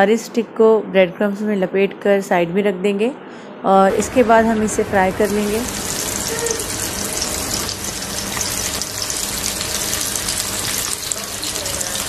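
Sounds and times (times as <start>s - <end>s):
meat sizzling in hot oil: 4.0s - 12.0s.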